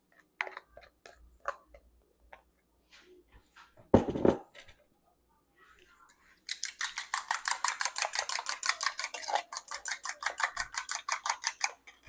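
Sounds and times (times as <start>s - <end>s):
eggs beaten in a bowl: 6.4s - 12.0s.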